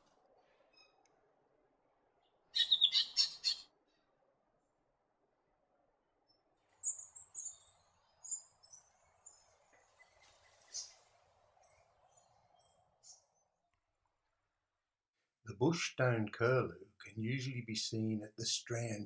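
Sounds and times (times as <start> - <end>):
faint background noise: 0.0 - 19.0
bird chattering calls: 2.6 - 3.6.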